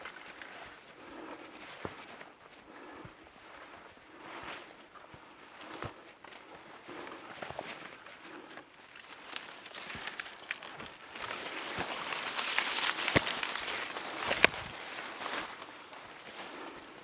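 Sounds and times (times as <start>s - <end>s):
footsteps through wet undergrowth: 0.0s - 17.0s
twigs snapping: 8.8s - 16.7s.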